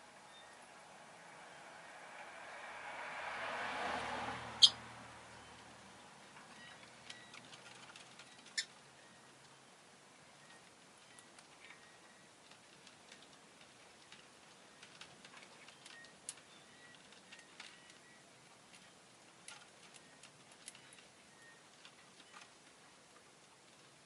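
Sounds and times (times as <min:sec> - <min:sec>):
soft high bird peeps: 0:04.6 - 0:04.8, 0:06.5 - 0:09.6.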